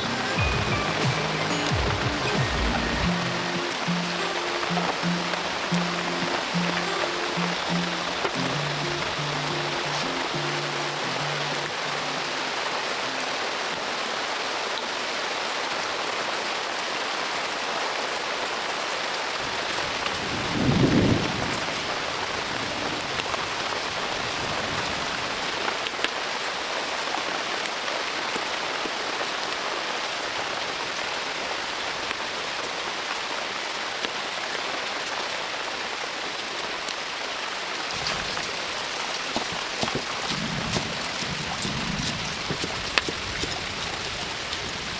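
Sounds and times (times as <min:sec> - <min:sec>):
heavy rain falling: 0:00.0 - 0:44.9
thunder rumble: 0:19.4 - 0:23.5, 0:37.9 - 0:43.8.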